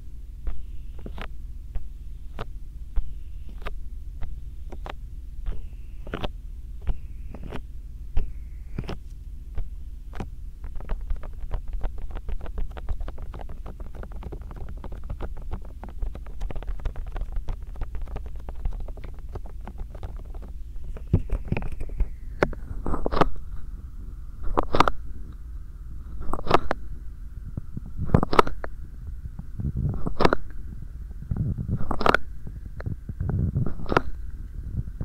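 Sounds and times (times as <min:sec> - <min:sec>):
hands rubbing a microphone: 0:00.4 - 0:23.3
rapid pats on microphone: 0:08.2 - 0:23.3.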